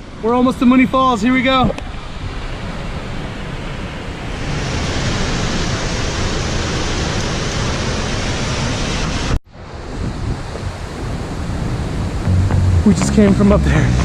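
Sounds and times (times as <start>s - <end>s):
waterfall roaring: 4.4s - 9.4s, 10.8s - 14.0s.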